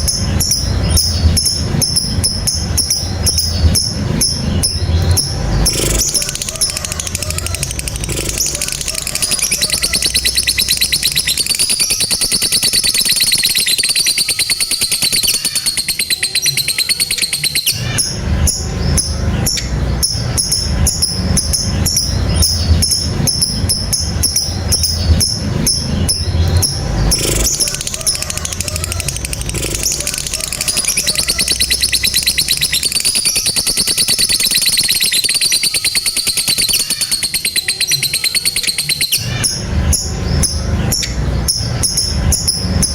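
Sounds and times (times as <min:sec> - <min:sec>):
low rumble: 0:00.0 - 0:11.7, 0:17.8 - 0:32.8
lovebird chattering trill: 0:00.0 - 0:42.9.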